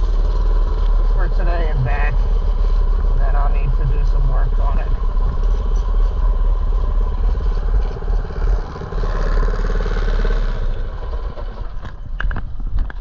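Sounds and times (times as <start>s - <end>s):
small engine puttering: 0.0s - 2.8s.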